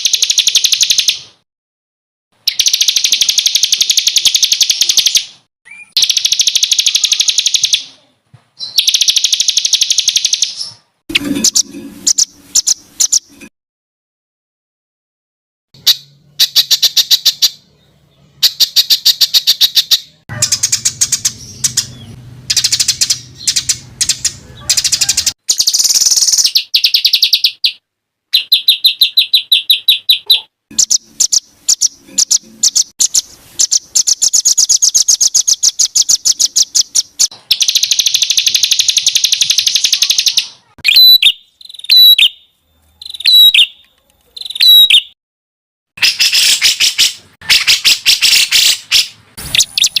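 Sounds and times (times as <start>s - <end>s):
songbird trills and rattles: 0.0s - 1.3s, 2.4s - 8.0s, 8.6s - 13.3s, 18.4s - 27.8s, 28.4s - 42.4s, 43.0s - 45.1s.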